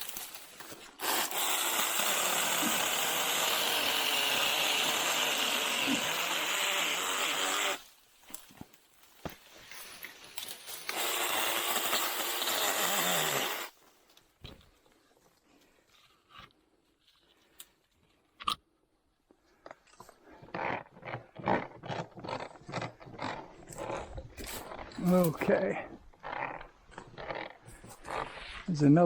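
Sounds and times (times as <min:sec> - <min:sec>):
mini chainsaw cutting: 0:00.0 - 0:07.9, 0:10.4 - 0:13.8.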